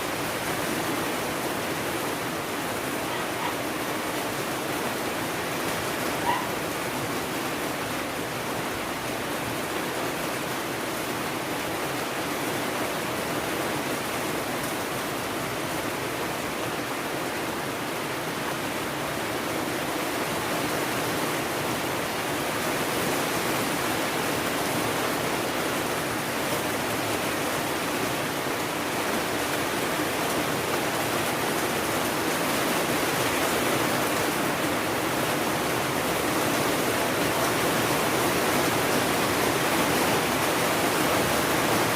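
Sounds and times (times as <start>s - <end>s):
heavy rainfall hiss: 0.0s - 41.9s.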